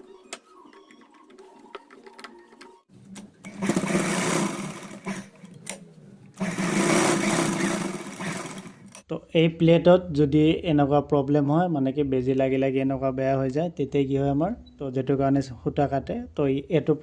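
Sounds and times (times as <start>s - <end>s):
sewing machine stitching: 3.4s - 5.4s, 6.4s - 9.0s.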